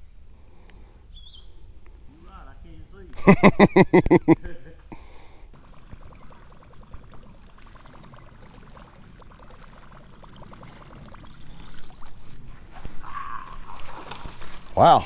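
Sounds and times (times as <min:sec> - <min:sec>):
small ticks: 0:00.4 - 0:02.0, 0:04.8 - 0:14.6
water trickling and splashing: 0:03.3 - 0:15.0.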